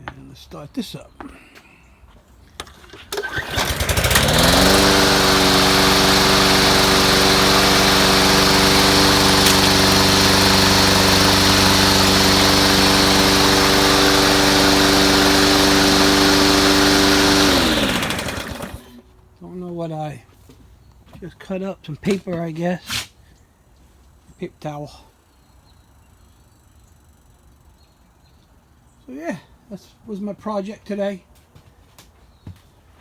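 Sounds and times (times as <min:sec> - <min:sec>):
lawn mower engine running: 0:02.6 - 0:19.0.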